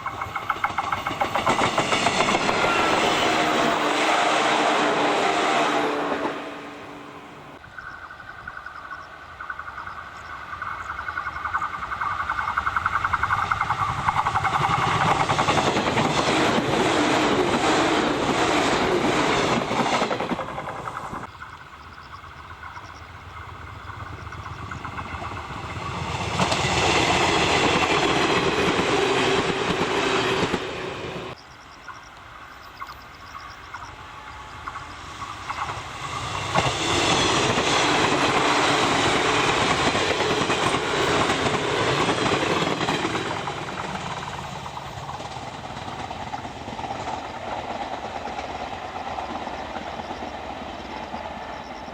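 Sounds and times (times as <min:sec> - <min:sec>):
train wheels clacking over rail joints: 0:00.0 - 0:04.3, 0:10.6 - 0:21.3, 0:23.8 - 0:30.8, 0:34.6 - 0:51.9
electric trains passing: 0:00.0 - 0:51.9.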